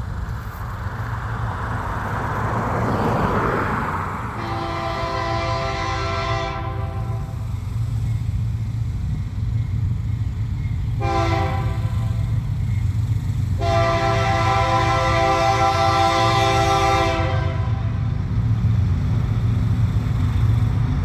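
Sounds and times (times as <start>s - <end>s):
locomotive engines rumbling: 0.0s - 21.0s
locomotive air horn chord: 4.4s - 7.4s, 11.0s - 12.3s, 13.6s - 18.0s.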